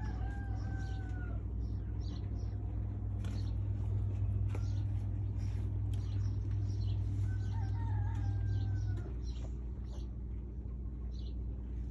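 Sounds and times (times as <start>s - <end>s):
low hum: 0.0s - 11.9s
chicks peeping: 4.4s - 10.2s.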